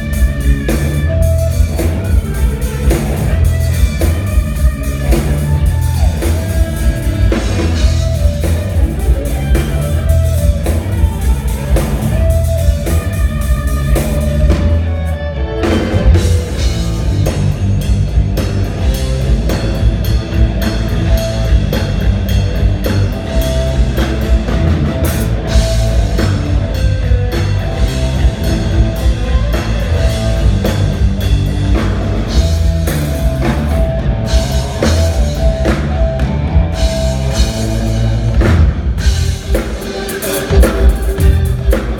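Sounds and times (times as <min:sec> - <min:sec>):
rock band playing: 0:00.0 - 0:41.9.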